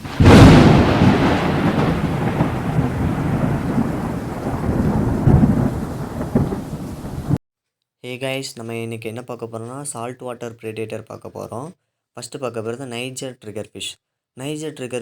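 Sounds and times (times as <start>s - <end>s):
rain hiss: 0.0s - 7.4s
thunder crack and rumble: 0.0s - 7.4s.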